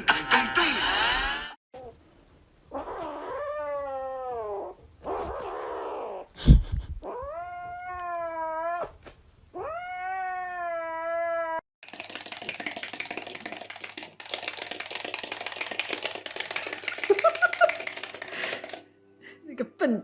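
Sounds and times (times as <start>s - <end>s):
cat meowing: 7.0s - 11.6s.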